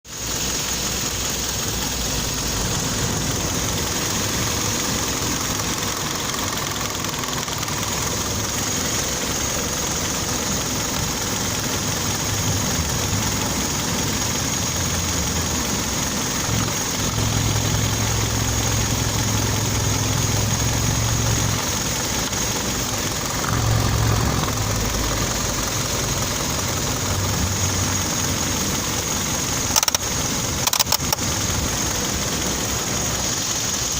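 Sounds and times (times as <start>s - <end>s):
car engine idling with knock: 0.1s - 33.9s.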